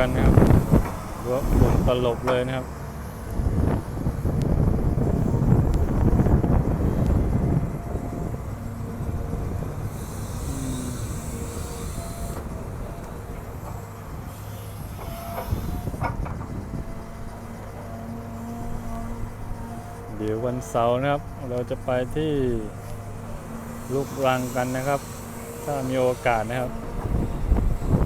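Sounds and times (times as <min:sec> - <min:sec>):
excavator diesel engine rumbling: 0:00.0 - 0:28.0
high hiss: 0:09.9 - 0:12.4, 0:23.6 - 0:26.8.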